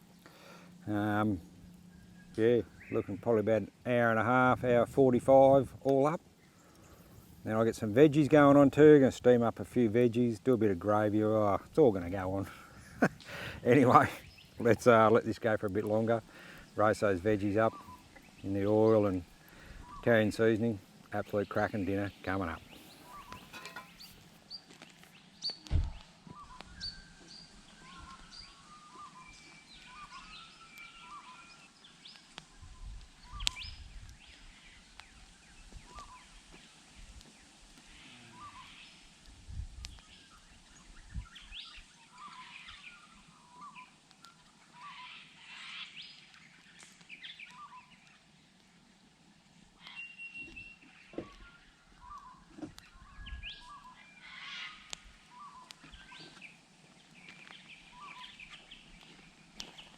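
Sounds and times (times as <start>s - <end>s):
birds chirping and whistling: 0.2s - 3.4s, 15.8s - 48.5s, 49.8s - 59.9s.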